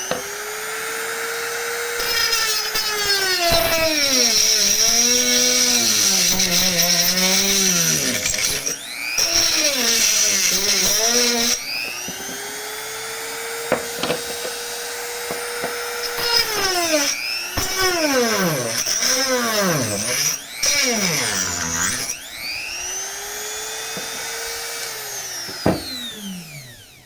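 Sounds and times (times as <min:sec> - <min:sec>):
rotary tool cutting plastic pipe: 0:00.0 - 0:22.3, 0:23.6 - 0:26.4.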